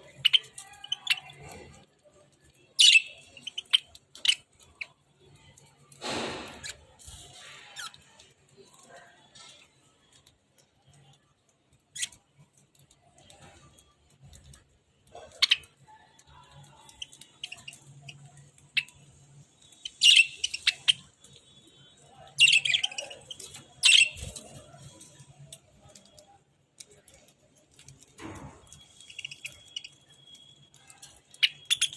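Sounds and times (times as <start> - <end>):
small clicks: 0.0 - 31.9
budgerigars chirping and squawking: 2.8 - 4.6, 15.2 - 15.7, 16.9 - 21.2, 22.2 - 24.8, 29.0 - 30.0, 31.0 - 31.9.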